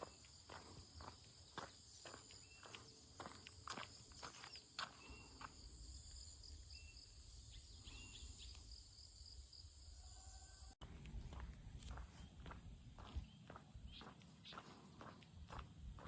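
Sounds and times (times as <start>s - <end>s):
footsteps on path: 0.0s - 6.3s, 10.8s - 16.0s
forest insects chorus: 0.0s - 10.8s.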